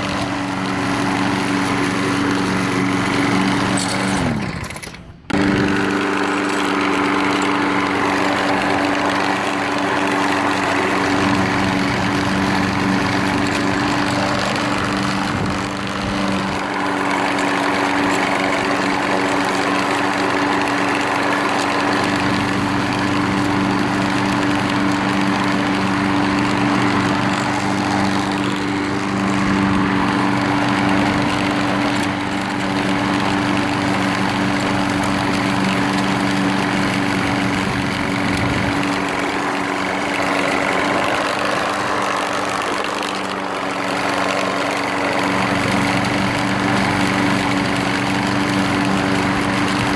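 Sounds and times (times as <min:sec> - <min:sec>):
lawn mower engine running: 0:00.0 - 0:49.9.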